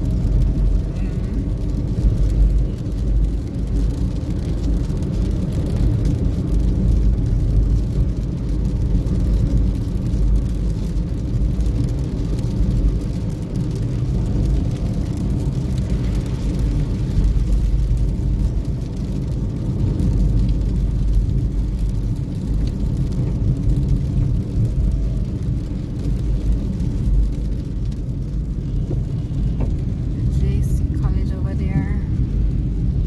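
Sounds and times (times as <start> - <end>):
car engine and road noise: 0.0 - 33.0.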